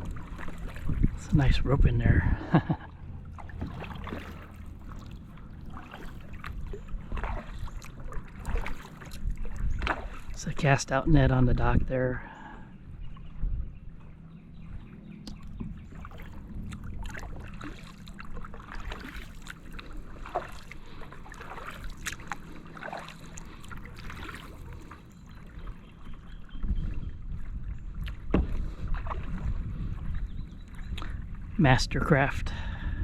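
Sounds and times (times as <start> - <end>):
kayak paddle splashing in water: 0.0 - 1.4, 2.6 - 10.4, 15.6 - 27.0, 28.0 - 30.2
wind rumble on microphone: 0.0 - 33.0.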